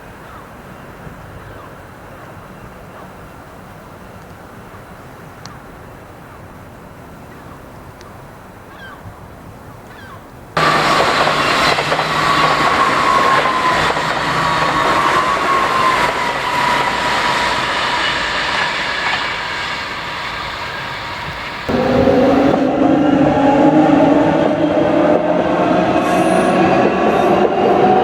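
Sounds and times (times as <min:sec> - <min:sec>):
train rail noise: 0:10.6 - 0:28.0
high whine falling in pitch: 0:19.9 - 0:25.3.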